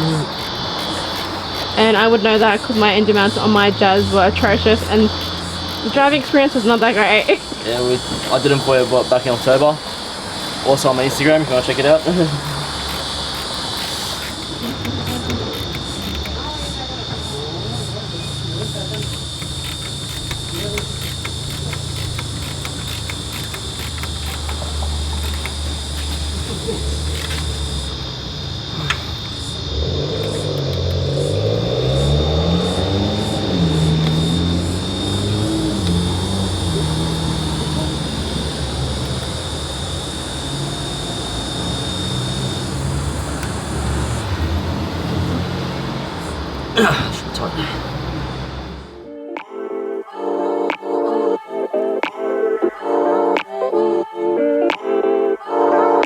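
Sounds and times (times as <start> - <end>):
light irregular clicks: 0.0 - 31.4, 32.6 - 44.5
hiss: 0.0 - 48.8
low mechanical drone: 0.0 - 49.0
thin high whine: 0.0 - 49.0
crickets chirring: 0.0 - 49.1.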